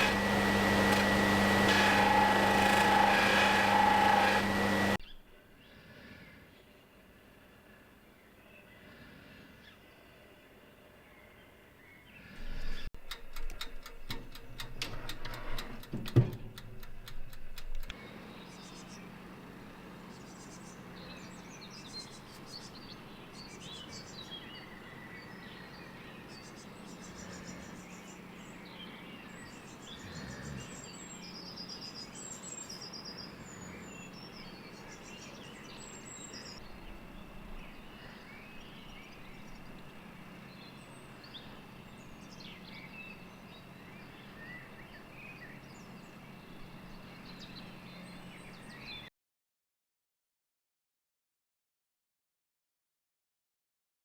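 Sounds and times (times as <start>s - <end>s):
sharp clicks and knocks: 13.0s - 18.0s
small birds chirping: 17.8s - 49.1s.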